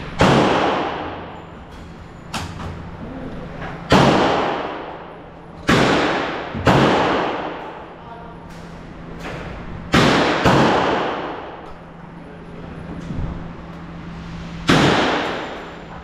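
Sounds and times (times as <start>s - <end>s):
gunshots ringing: 0.2s - 1.4s, 3.9s - 5.0s, 5.6s - 7.8s, 9.9s - 11.5s, 14.7s - 15.6s.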